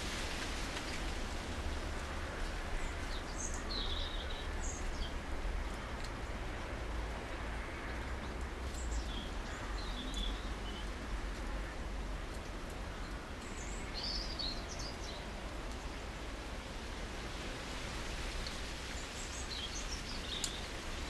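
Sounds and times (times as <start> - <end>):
low outdoor rumble: 0.0 - 21.0
small birds chirping: 8.7 - 11.4, 12.9 - 16.0, 19.0 - 20.8.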